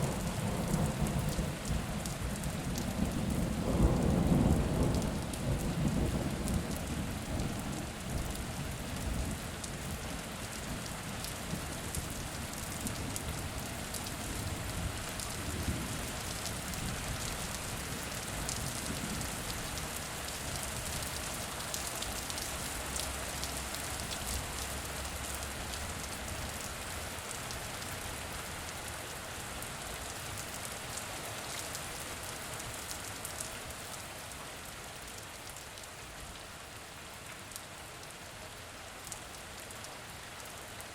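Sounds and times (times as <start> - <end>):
low rumble of thunder: 0.0 - 19.6
steady rain falling: 0.0 - 40.9.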